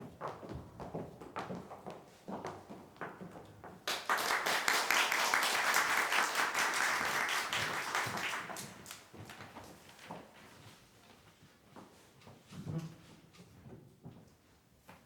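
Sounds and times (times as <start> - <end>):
audience applauding: 3.9 - 9.0.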